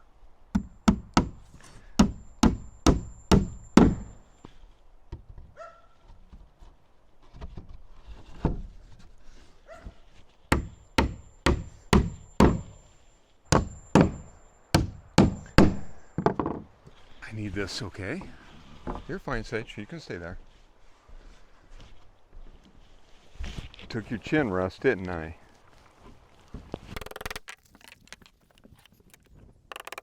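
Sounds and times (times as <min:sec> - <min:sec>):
quiet knocks: 0:16.2 - 0:17.0.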